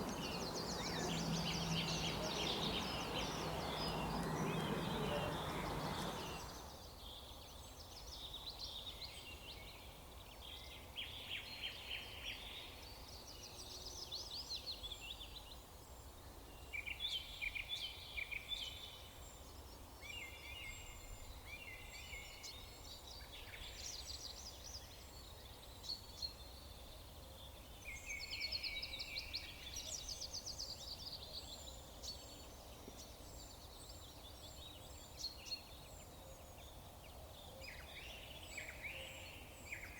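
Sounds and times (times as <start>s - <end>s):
low background rumble: 0.0s - 6.7s
songbirds trilling: 0.0s - 6.7s.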